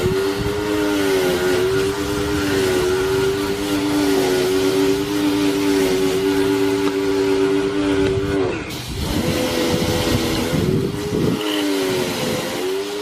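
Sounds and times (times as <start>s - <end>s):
machine motor humming: 0.0s - 13.0s.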